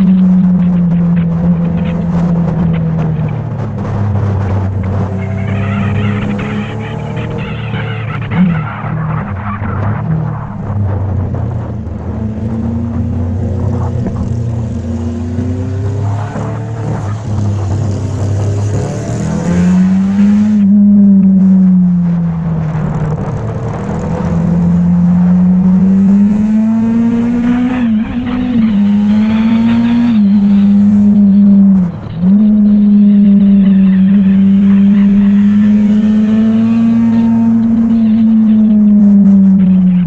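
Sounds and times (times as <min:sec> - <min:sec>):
motorcycle engine running: 0:00.0 - 0:09.1, 0:16.7 - 0:40.0.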